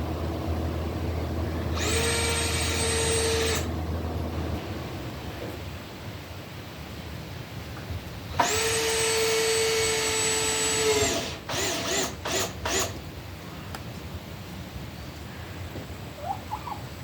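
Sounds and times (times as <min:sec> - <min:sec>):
power drill driving screws: 0:01.7 - 0:03.7, 0:08.4 - 0:13.0.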